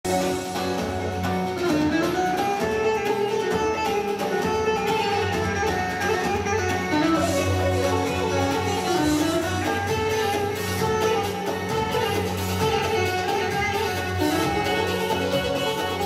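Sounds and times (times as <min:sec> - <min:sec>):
plucked string folk music: 0:00.0 - 0:16.0.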